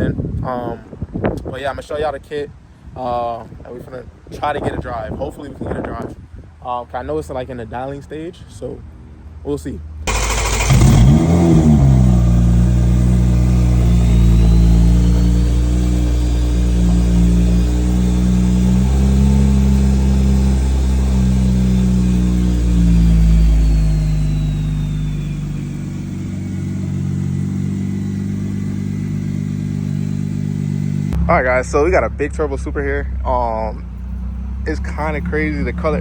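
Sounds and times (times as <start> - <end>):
car engine running: 10.1 - 36.0.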